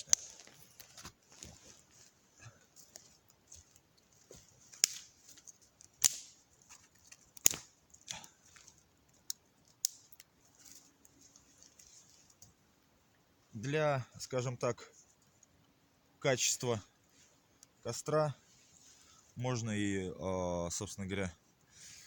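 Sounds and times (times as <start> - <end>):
campfire crackling and popping: 0.0 - 13.3.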